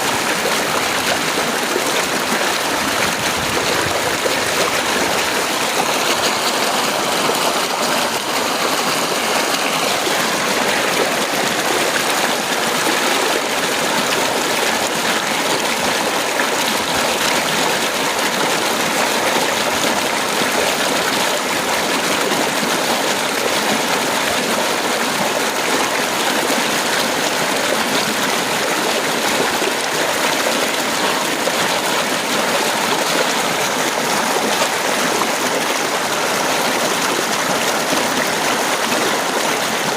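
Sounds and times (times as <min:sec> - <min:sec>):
heavy rain pouring: 0:00.0 - 0:22.6.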